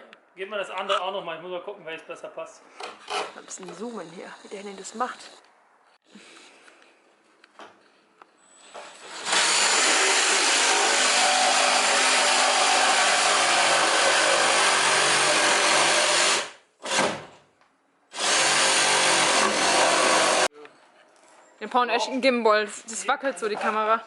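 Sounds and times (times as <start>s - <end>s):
reciprocating saw running: 8.8s - 17.0s, 18.2s - 20.5s.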